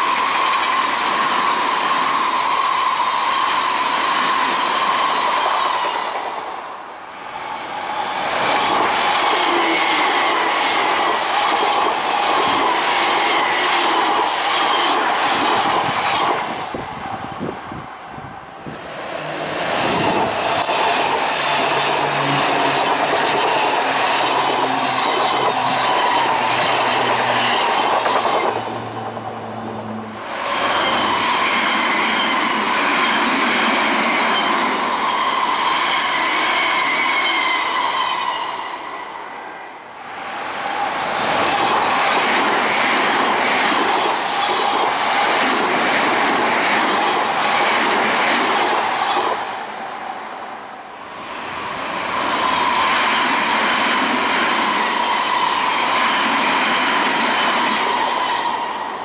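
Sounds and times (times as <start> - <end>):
trains passing at speed: 0.0 - 59.0
wheels clacking over rail joints: 19.8 - 34.7.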